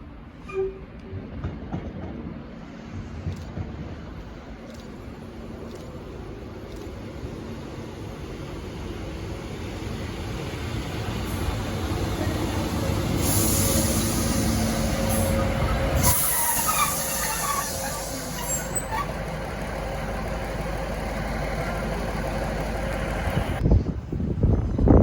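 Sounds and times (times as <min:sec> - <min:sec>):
train engine drone: 0:00.0 - 0:25.0
loud air hiss: 0:12.4 - 0:18.8
wind buffeting microphone: 0:22.8 - 0:25.0.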